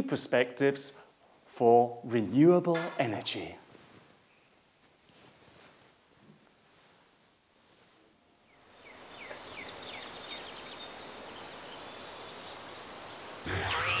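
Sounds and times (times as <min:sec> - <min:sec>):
insects chirping: 0:08.8 - 0:14.0
high insect buzz: 0:10.7 - 0:14.0.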